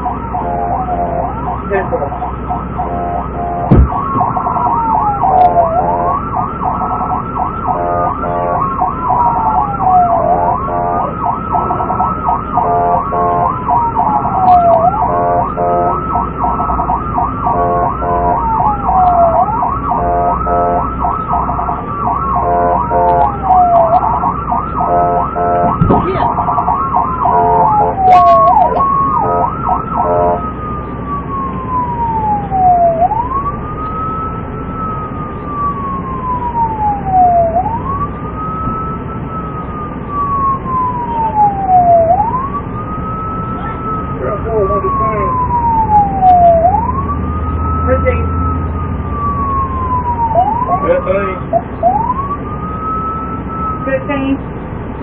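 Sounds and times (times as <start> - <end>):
police siren yelping: 0.0 - 54.4
police siren wailing: 0.0 - 55.0.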